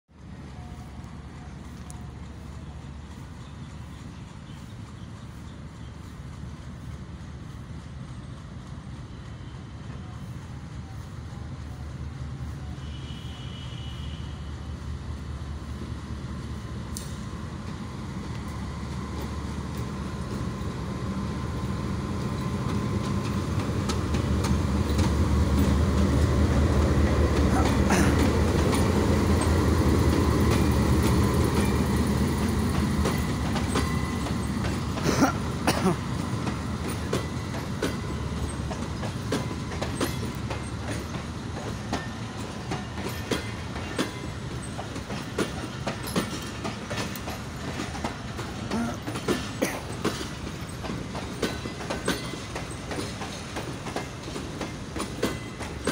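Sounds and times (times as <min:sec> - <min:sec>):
diesel locomotive engine drone: 0:00.1 - 0:55.9
wheels clacking over rail joints: 0:17.0 - 0:55.9.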